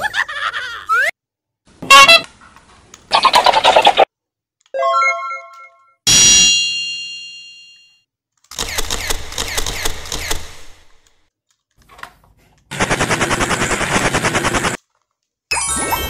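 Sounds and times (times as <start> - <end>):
machine-gun-like rattling: 8.4 - 11.0, 12.7 - 15.0.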